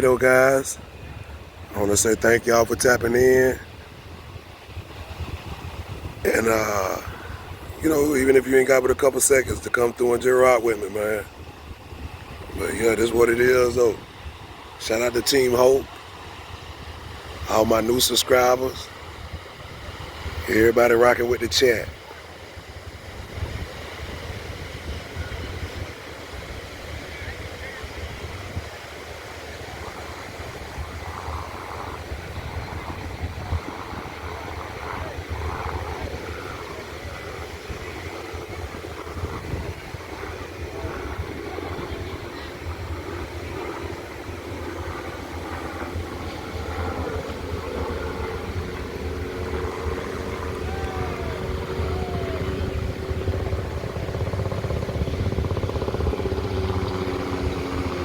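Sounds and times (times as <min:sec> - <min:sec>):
steady motor drone: 0:00.0 - 0:58.0
wind rumbling on microphone: 0:00.0 - 0:58.0
faint distant voices: 0:29.4 - 0:58.0.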